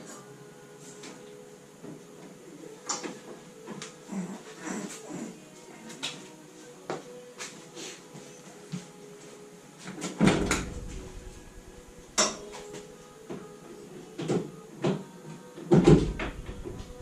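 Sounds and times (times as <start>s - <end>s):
heavy clunk: 10.2s - 12.6s.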